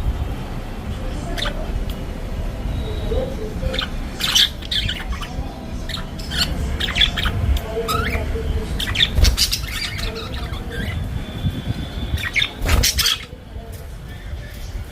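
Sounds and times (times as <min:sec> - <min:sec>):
budgerigars chattering: 0:01.1 - 0:02.0, 0:02.9 - 0:13.4.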